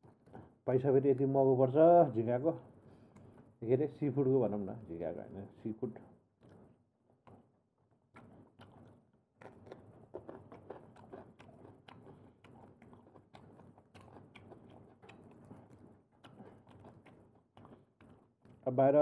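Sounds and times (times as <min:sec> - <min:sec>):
person chewing seafood: 0:00.0 - 0:00.6, 0:06.4 - 0:18.6.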